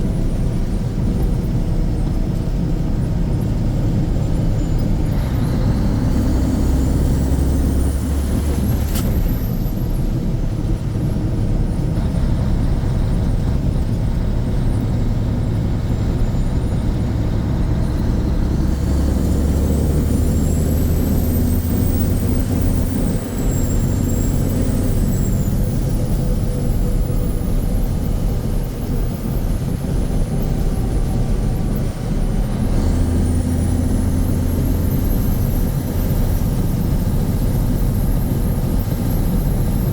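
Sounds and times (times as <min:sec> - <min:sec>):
truck diesel engine drone: 0:00.0 - 0:39.9.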